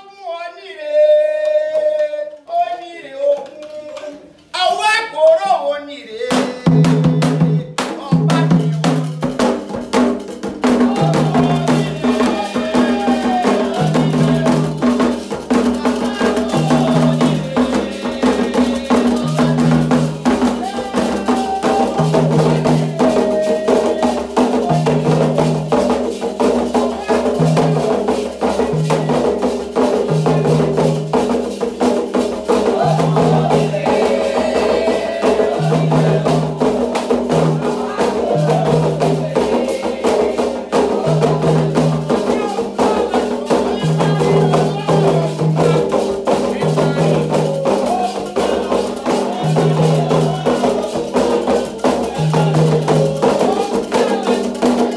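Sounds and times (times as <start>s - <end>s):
voices singing: 0.0s - 54.9s
hand drums fast rhythm: 6.3s - 54.9s.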